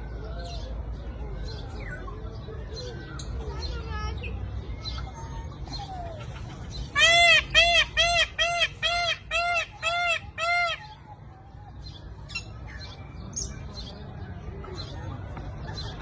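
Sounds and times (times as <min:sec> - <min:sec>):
bird honking calls: 0:07.0 - 0:10.9.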